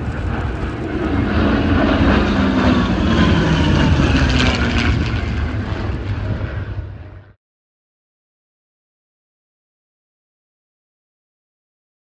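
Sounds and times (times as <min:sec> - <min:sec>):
propeller plane flying past: 0:00.0 - 0:07.4.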